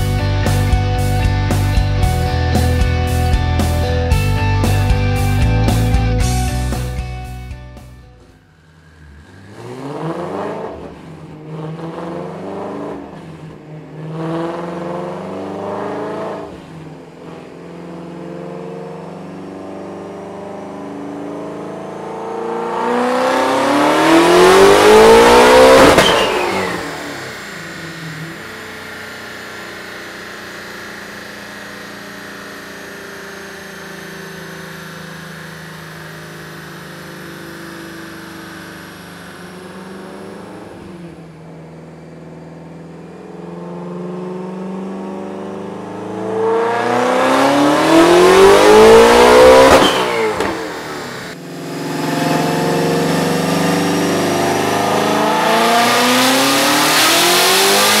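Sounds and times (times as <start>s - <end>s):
car engine revving on dyno: 8.3s - 58.0s
turbo whistle: 25.8s - 27.0s.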